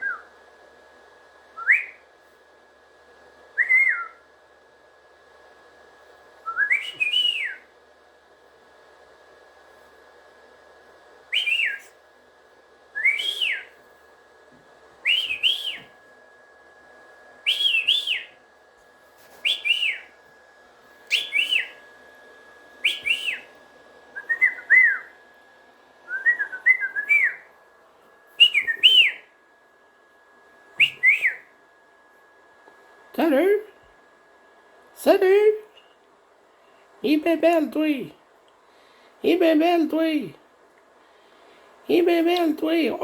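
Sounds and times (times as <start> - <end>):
cockatiel whistling calls: 15.0 - 15.9, 17.5 - 18.4, 19.4 - 20.1, 21.1 - 21.8, 22.8 - 23.5, 24.2 - 25.1, 28.4 - 29.3.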